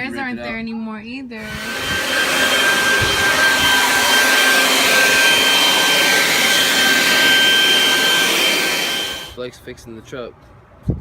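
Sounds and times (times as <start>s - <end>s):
small motor whining: 1.4s - 9.4s.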